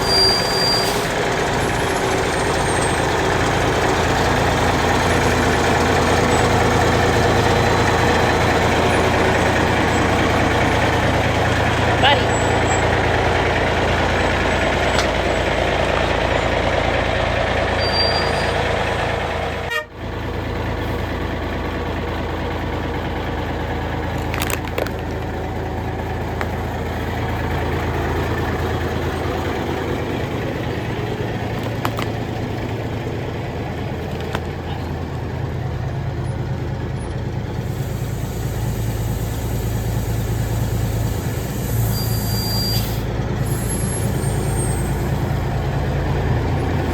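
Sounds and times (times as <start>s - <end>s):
diesel truck engine running: 0.0s - 46.9s.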